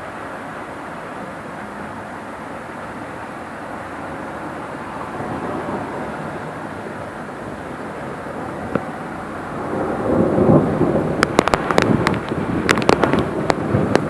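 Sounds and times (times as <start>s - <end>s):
thunder rumble and crackles: 4.1s - 14.0s.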